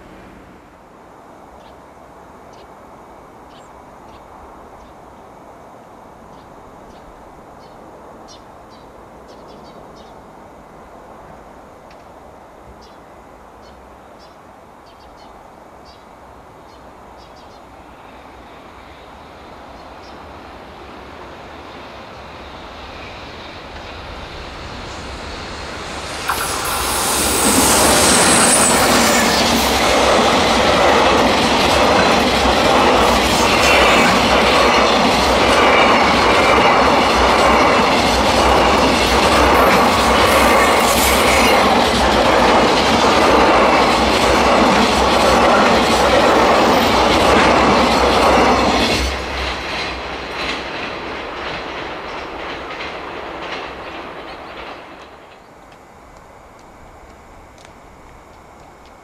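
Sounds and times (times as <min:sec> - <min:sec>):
electric locomotive passing: 0:00.0 - 0:59.0
high squeal: 0:22.4 - 0:30.5, 0:32.9 - 0:34.6, 0:39.3 - 0:41.8
wheels clacking over rail joints: 0:26.1 - 0:55.7.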